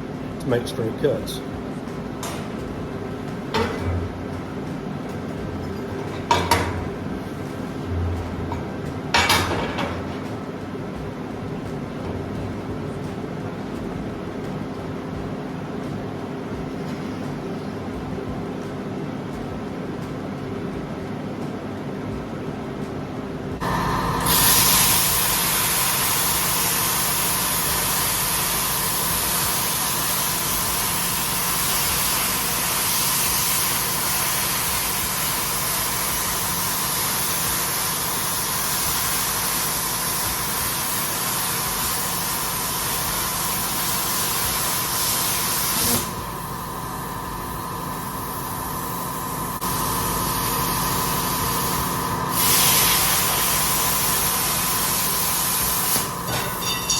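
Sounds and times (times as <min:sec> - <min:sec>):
plasma cutter hissing: 0:24.1 - 0:56.9.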